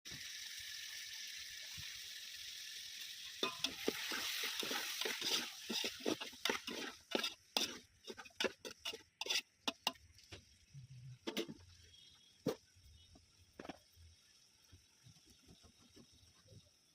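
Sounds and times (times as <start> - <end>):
food sizzling in hot oil: 0.1 - 16.9
spoon scraping and knocking pan: 3.4 - 10.4, 11.2 - 11.7.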